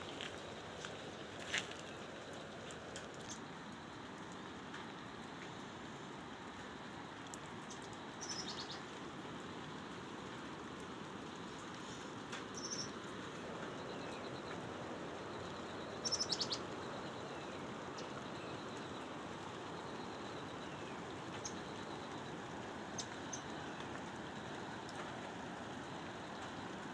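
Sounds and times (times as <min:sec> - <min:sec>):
background hiss: 0:00.0 - 0:26.9
birds chirping: 0:07.7 - 0:08.9, 0:12.5 - 0:14.6, 0:15.4 - 0:19.0.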